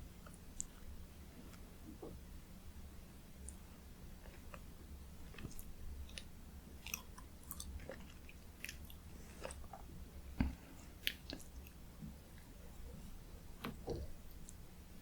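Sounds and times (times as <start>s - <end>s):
wet chewing clicks and smacks: 5.3s - 12.5s.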